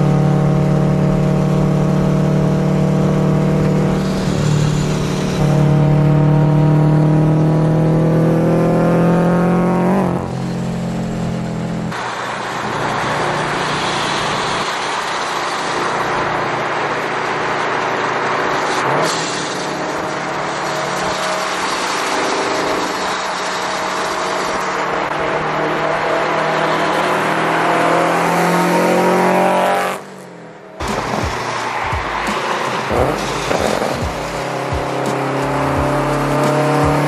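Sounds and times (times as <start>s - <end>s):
car engine rumbling: 0.0s - 37.0s.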